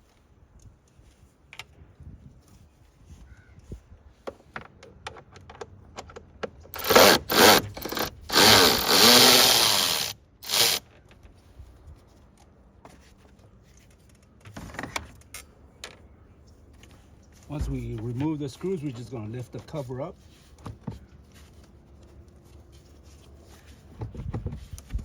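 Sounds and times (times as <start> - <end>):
power tool whirring: 6.7 - 10.8.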